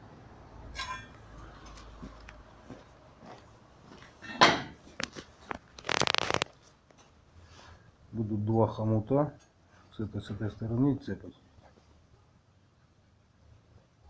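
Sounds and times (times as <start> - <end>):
rustling: 4.8 - 7.9.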